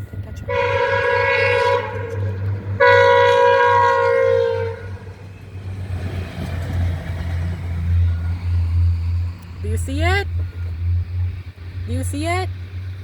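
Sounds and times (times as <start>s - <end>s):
train horn blasts: 0.4s - 5.3s
steady low hum: 6.8s - 13.0s.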